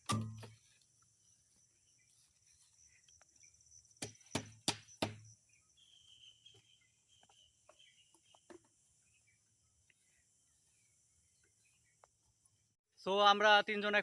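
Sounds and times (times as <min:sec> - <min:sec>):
sharp knocks: 0:04.0 - 0:05.3.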